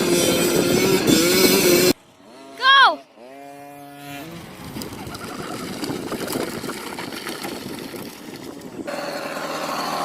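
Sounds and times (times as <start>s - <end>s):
dirt bike engine running: 8.7s - 10.0s.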